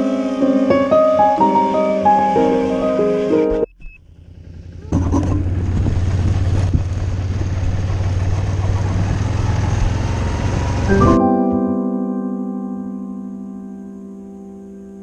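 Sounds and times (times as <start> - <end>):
quadcopter motors humming: 0.0 - 7.0.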